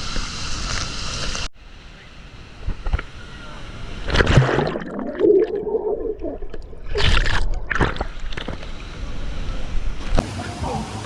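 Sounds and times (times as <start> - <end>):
water gurgling and sloshing: 4.0 - 8.9
water splashing: 4.1 - 8.6, 10.0 - 11.0.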